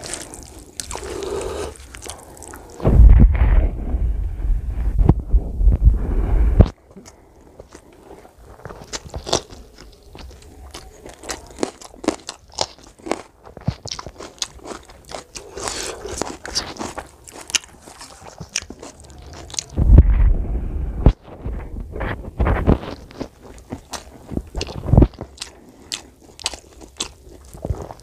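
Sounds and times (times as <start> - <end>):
crunching and chewing food: 0.0 - 2.9, 6.6 - 19.8, 21.1 - 28.0
low muffled rumble: 2.8 - 6.8, 19.6 - 23.1.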